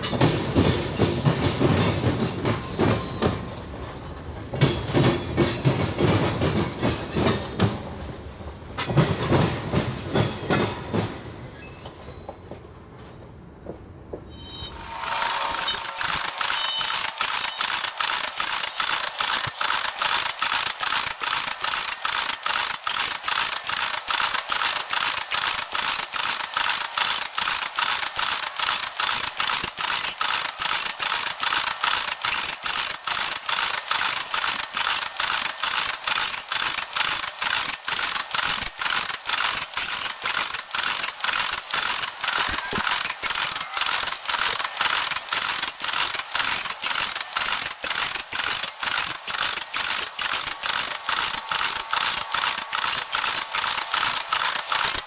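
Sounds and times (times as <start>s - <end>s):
rapid mechanical clatter: 0.0s - 8.0s, 8.8s - 11.3s, 14.7s - 55.0s.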